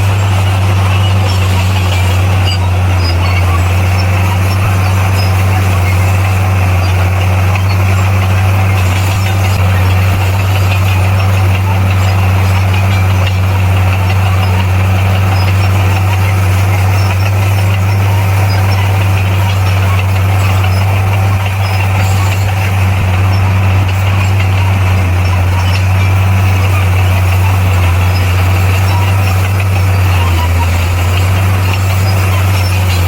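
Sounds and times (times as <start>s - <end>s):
bulldozer diesel engine running: 0.0s - 33.0s.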